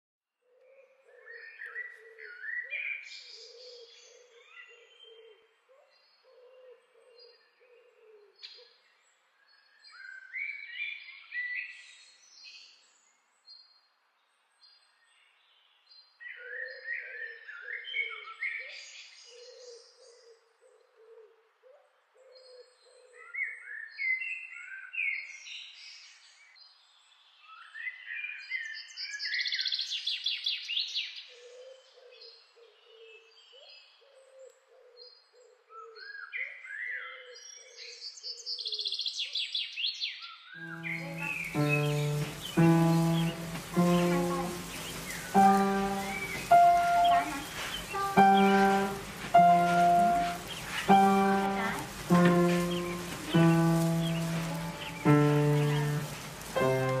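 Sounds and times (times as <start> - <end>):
birds chirping and trilling: 40.6 - 57.0.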